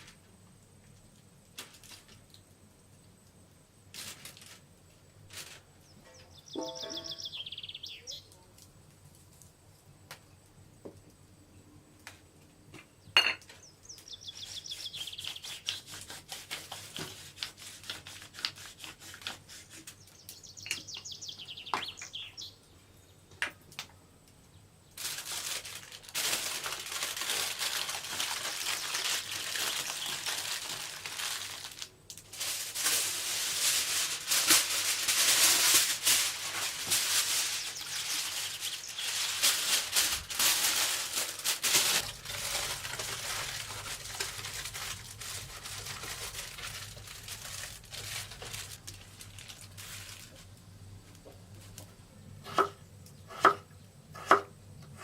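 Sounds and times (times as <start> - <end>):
loud crackling rustle: 0.0 - 2.5, 3.9 - 5.8, 25.0 - 50.8
bird trilling: 6.4 - 8.2.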